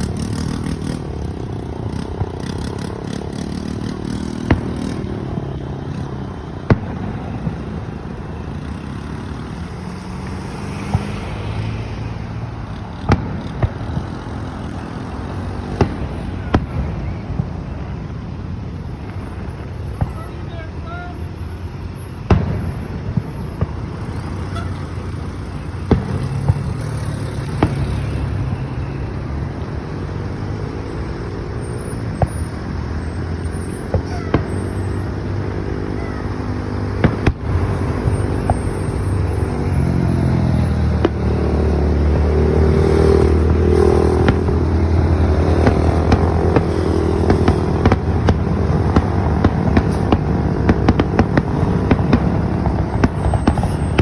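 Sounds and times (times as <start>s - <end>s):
sharp pops: 0.0s - 7.6s, 22.3s - 28.7s, 31.8s - 39.3s, 42.2s - 54.0s
vehicle engines running: 0.0s - 54.0s.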